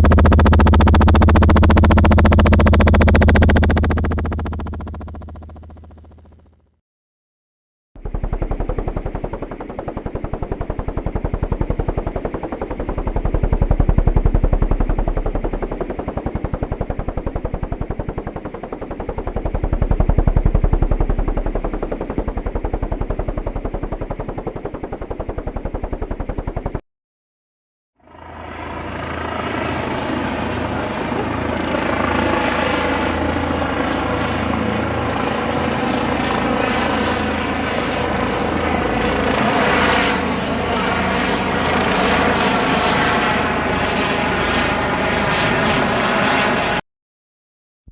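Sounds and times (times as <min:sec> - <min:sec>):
turbine whine: 0:00.0 - 0:06.5, 0:08.0 - 0:26.8
helicopter rotor chopping: 0:00.0 - 0:06.6, 0:08.0 - 0:26.8, 0:28.1 - 0:46.8.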